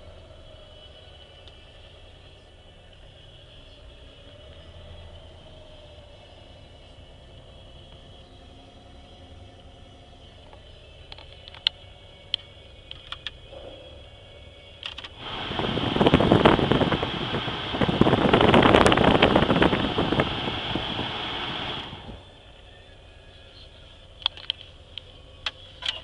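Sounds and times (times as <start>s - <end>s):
car engine running: 0.0s - 26.0s
sharp clicks: 10.5s - 13.4s, 14.8s - 15.2s, 24.2s - 26.0s.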